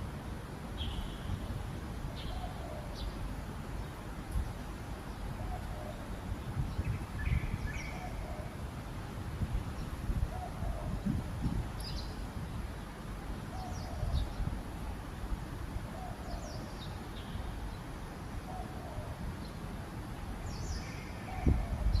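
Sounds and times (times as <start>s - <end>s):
bird chirping: 0.8s - 1.4s.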